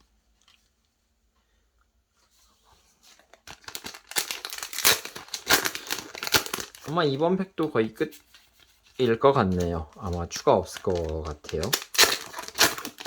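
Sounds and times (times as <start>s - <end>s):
foil wrapper crinkling and tearing: 3.2s - 8.1s, 8.9s - 13.0s.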